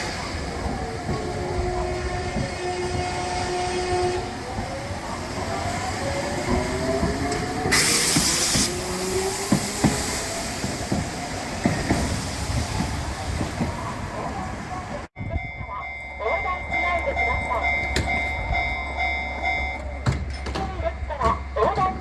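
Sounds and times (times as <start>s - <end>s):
burst of air hiss: 7.7s - 10.6s.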